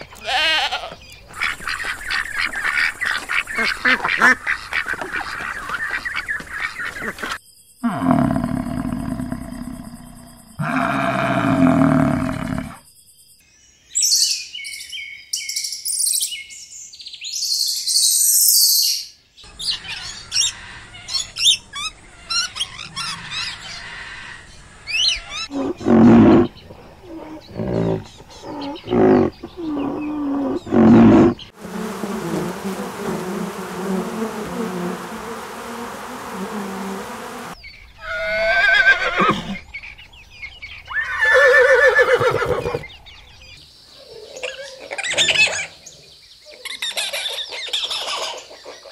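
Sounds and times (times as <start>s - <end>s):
farm animal calls: 0.0s - 9.9s, 10.6s - 12.8s, 19.8s - 31.5s.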